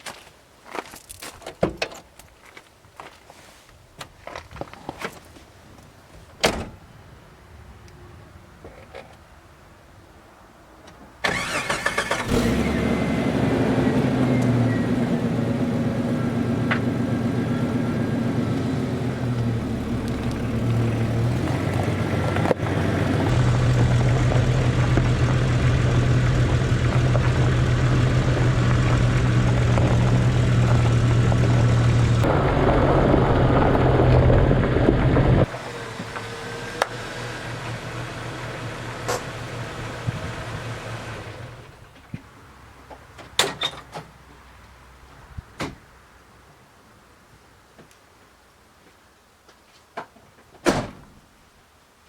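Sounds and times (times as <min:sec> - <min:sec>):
car engine starting and idling: 0:11.2 - 0:41.9.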